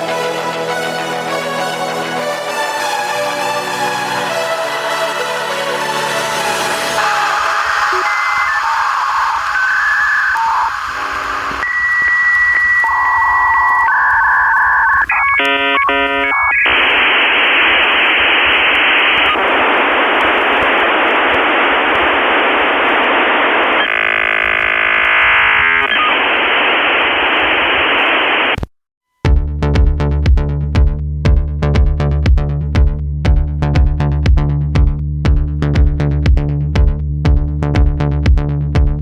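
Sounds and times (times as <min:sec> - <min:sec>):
loud static hiss: 0:00.0 - 0:28.7
electronic beeps and warbling tones: 0:07.0 - 0:16.9, 0:23.8 - 0:26.3.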